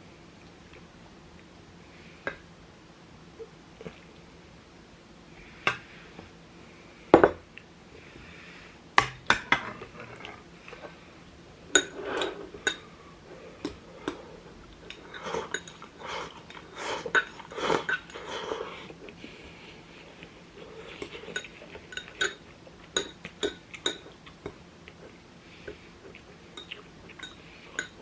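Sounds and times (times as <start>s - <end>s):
utensils clinking on dishes: 14.9s - 15.8s, 26.6s - 28.0s.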